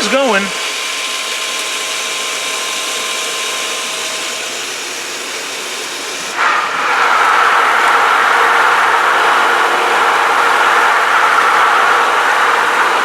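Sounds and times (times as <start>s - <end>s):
pool pump motor whine: 0.0s - 13.0s
rushing water: 4.8s - 13.0s.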